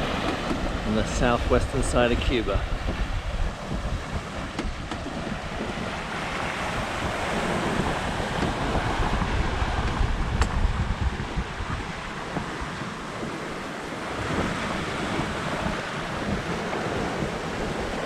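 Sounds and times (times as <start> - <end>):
water rushing past hull: 0.0 - 18.0
wind buffeting microphone: 0.0 - 18.0.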